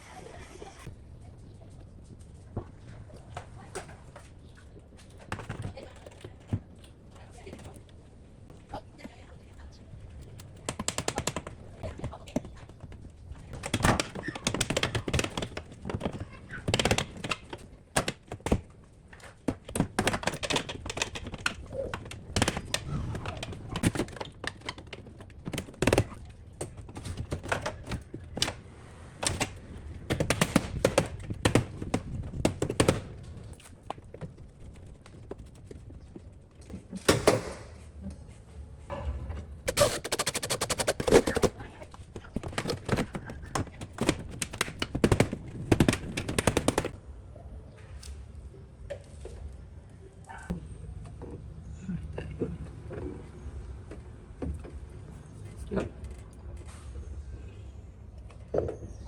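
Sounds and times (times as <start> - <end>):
sharp knocks and clicks: 10.2 - 28.6, 29.2 - 37.6, 39.7 - 47.0.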